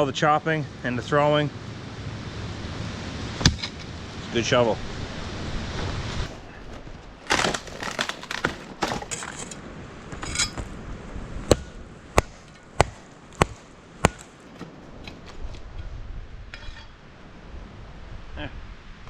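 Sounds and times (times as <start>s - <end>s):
crunching and rustling handling: 5.5s - 15.7s
chopping strokes on wood: 6.2s - 9.6s, 11.5s - 15.5s.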